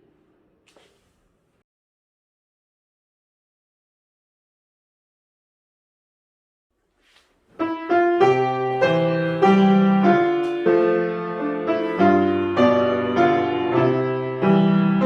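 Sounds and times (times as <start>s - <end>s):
solo piano playing: 7.6s - 15.0s.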